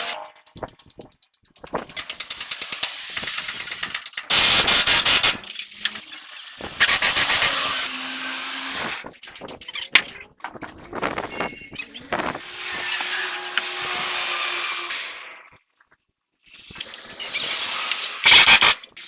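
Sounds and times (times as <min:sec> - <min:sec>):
rapid clicking: 0:00.0 - 0:05.5
metal parts knocking and scraping: 0:00.0 - 0:07.7, 0:09.1 - 0:14.8, 0:16.6 - 0:19.0
power tool bursts: 0:02.0 - 0:05.5, 0:06.5 - 0:09.1, 0:12.3 - 0:15.5, 0:17.0 - 0:19.0.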